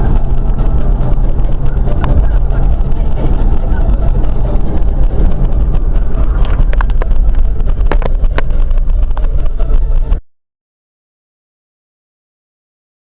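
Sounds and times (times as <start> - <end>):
car road and engine rumble: 0.0 - 10.2.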